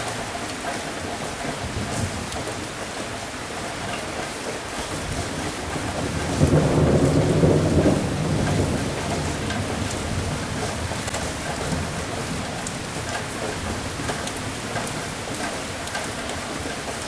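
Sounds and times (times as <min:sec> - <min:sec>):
steady rain: 0:00.0 - 0:17.0
thunder rumbling: 0:05.0 - 0:15.2.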